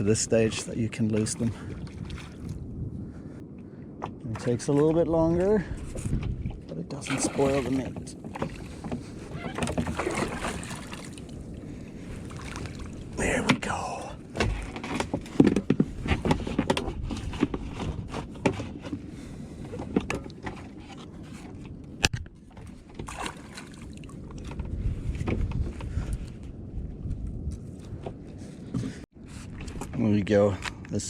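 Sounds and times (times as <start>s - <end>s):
knocks and thumps on a kayak: 5.8s - 11.0s, 14.3s - 23.4s, 24.4s - 26.0s.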